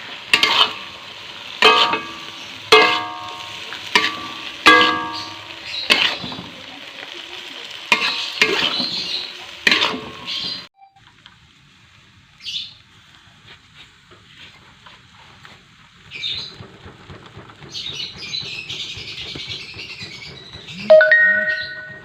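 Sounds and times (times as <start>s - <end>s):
lovebirds chirping: 17.7s - 22.0s.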